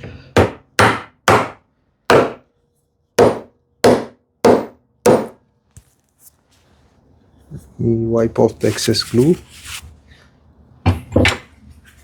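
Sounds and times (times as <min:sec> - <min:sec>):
hammer knocking on wood: 0:00.4 - 0:02.4, 0:03.2 - 0:05.4.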